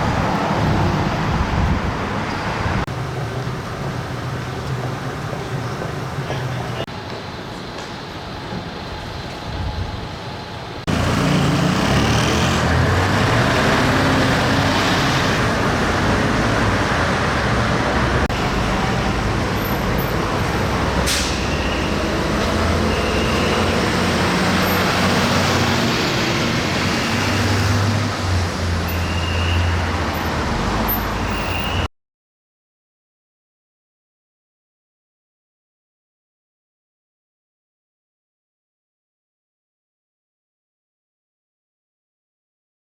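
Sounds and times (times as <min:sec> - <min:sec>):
city traffic noise: 0:00.0 - 0:31.9
heavy diesel truck engine running: 0:10.8 - 0:27.0.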